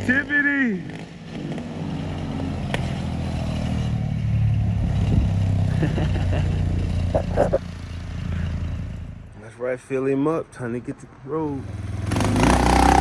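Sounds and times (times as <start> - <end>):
small engine running: 11.6 - 13.0.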